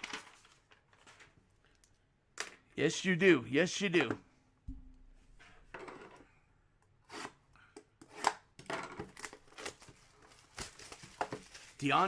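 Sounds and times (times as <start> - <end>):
cards rustling and scraping: 9.0 - 12.0.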